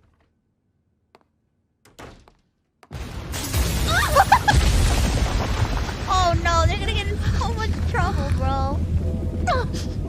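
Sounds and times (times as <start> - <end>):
loud crash with heavy rumble: 3.0 - 10.0.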